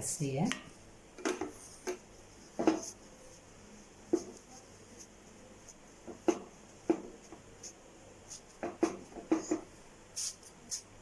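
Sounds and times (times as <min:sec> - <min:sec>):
cloth tapping and rubbing on griddle: 0:01.2 - 0:09.8.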